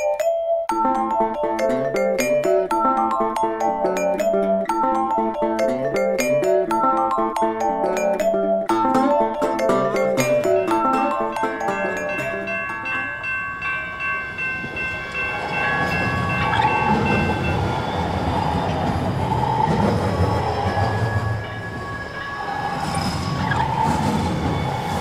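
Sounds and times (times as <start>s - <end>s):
train wheels rumbling with hum: 13.8s - 25.0s.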